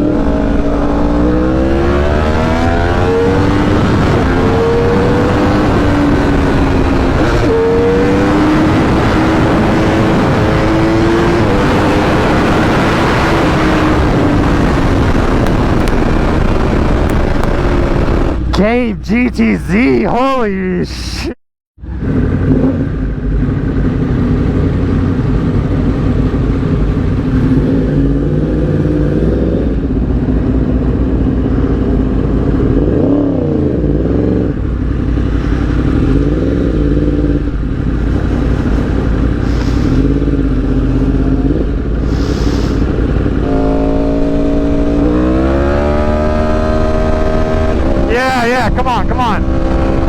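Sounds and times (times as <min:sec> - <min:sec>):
vehicle engine running: 0:13.9 - 0:21.2, 0:21.8 - 0:27.8, 0:34.5 - 0:50.0.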